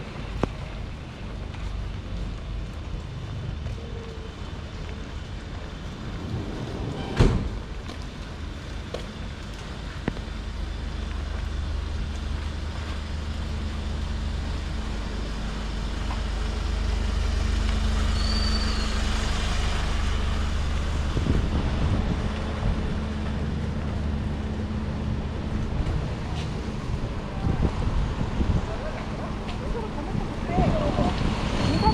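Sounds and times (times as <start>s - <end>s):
vehicle engine rumbling: 0.0s - 31.9s
high squeal: 18.0s - 19.4s.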